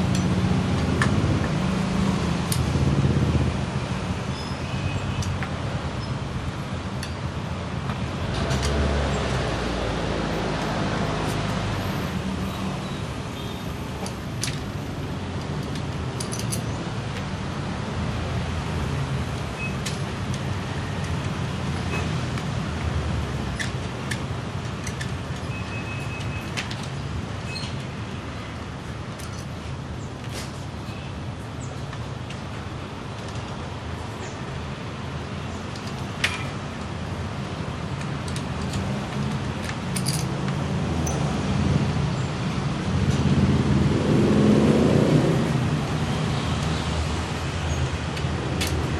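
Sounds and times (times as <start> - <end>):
light metallic clicks and taps: 15.4 - 17.3, 29.1 - 29.5, 38.0 - 41.3, 48.2 - 48.9.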